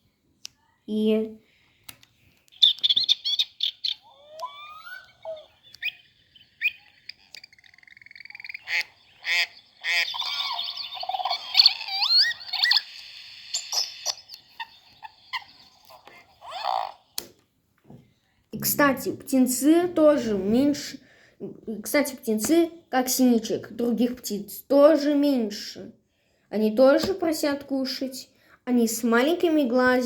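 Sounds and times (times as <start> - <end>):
recorded bird calls from speaker: 2.5 - 12.9.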